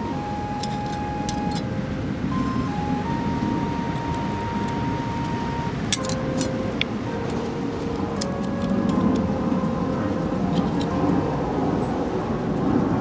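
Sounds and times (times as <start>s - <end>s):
slow soft melody: 0.0s - 13.0s
wind: 0.0s - 13.0s
sharp clicks: 0.1s - 9.8s.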